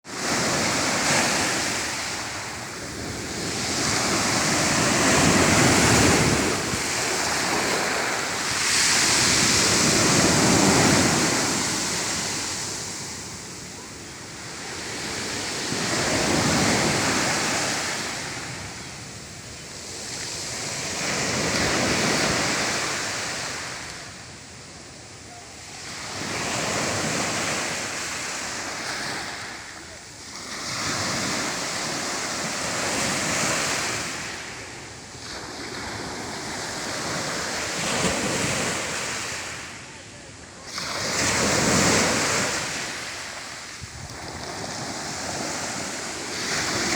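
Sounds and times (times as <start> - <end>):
sea waves breaking on shore: 0.0 - 18.9, 40.6 - 46.9.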